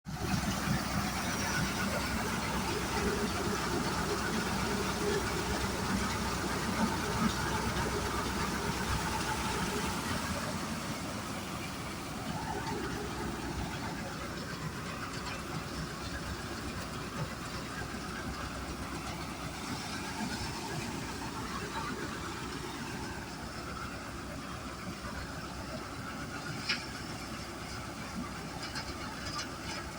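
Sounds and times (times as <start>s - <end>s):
tractor diesel engine running: 0.0s - 29.9s.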